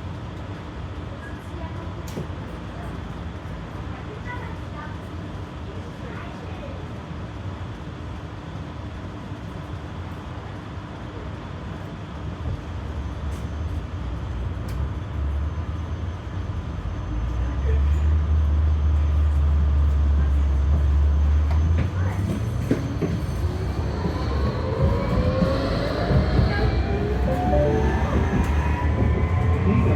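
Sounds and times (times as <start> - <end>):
tram wheels rumbling: 12.4 - 29.9.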